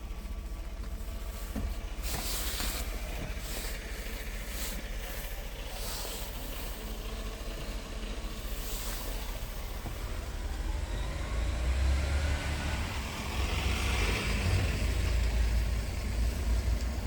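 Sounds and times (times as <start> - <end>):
diesel truck engine running: 0.0 - 17.0
air hissing: 1.3 - 7.0, 8.4 - 10.0.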